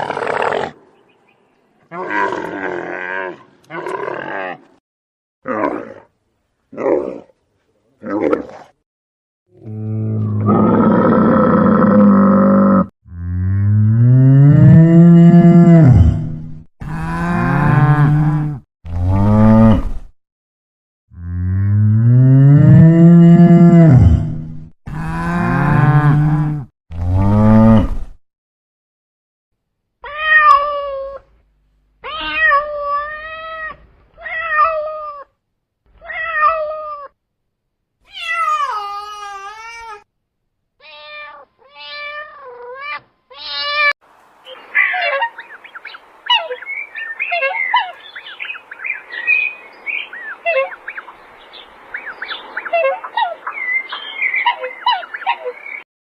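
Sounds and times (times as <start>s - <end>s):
cat meowing: 32.0s - 35.3s, 40.8s - 43.9s.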